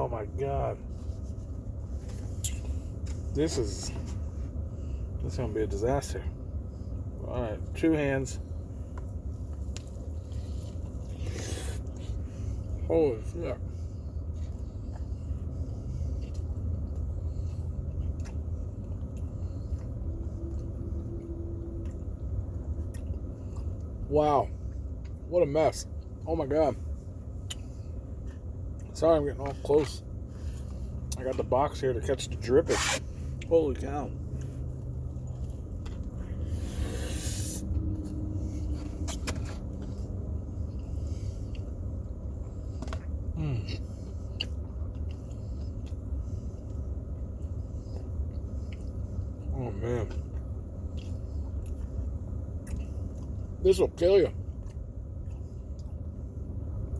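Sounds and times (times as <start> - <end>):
car idling: 0.0 - 56.8
person eating sandwich: 8.9 - 12.7, 34.2 - 49.5.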